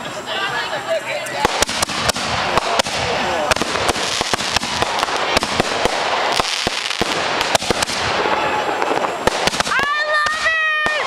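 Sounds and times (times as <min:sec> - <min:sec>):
fireworks crackling: 0:00.0 - 0:11.0
fireworks bangs: 0:01.3 - 0:11.0.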